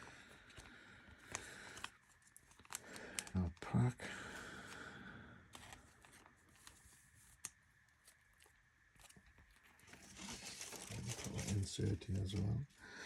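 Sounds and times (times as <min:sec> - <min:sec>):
trading cards rustling: 0:00.4 - 0:03.4, 0:05.5 - 0:12.6.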